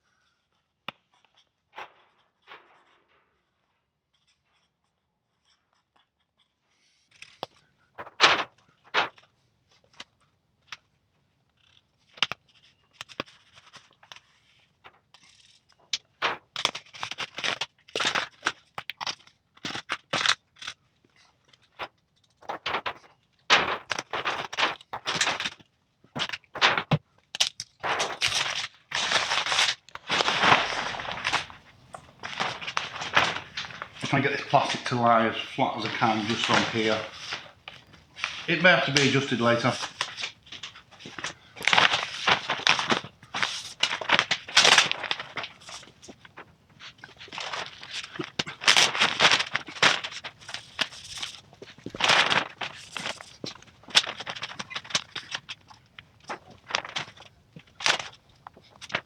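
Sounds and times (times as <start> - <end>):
plastic sheet crinkling: 8.0 - 9.1, 16.1 - 18.3, 22.4 - 25.6, 26.2 - 27.0, 27.8 - 59.0.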